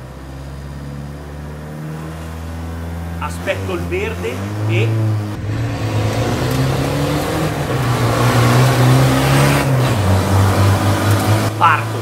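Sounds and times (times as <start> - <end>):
diesel engine accelerating hard: 0.0 - 12.0.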